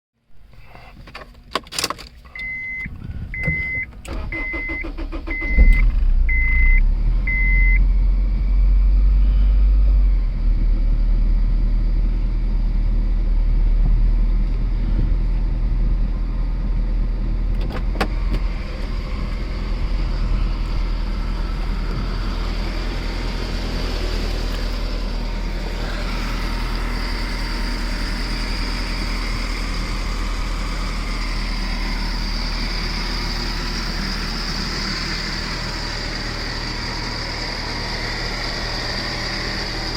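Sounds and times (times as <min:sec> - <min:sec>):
car engine idling: 0:00.4 - 0:39.9
short beeps: 0:02.3 - 0:07.8.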